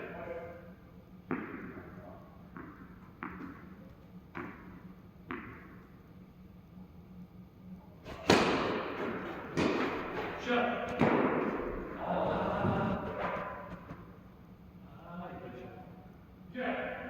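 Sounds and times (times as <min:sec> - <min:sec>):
tennis ball knocking with echo: 0:01.3 - 0:03.7, 0:04.3 - 0:05.8, 0:08.1 - 0:12.0.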